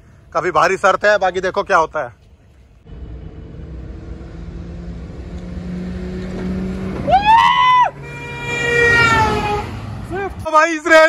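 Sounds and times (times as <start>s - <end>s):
cars accelerating: 2.9s - 10.4s
engine revving up sharply: 2.9s - 10.4s.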